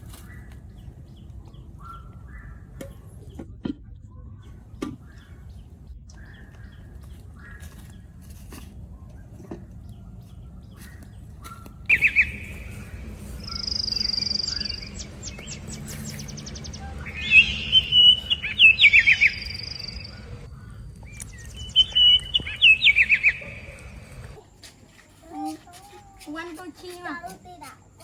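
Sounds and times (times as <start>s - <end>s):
birds chirping and trilling: 0.0s - 3.4s, 4.0s - 24.6s
rapid bird ticks: 11.0s - 24.4s
bird high whistle: 11.9s - 20.4s, 21.2s - 24.2s.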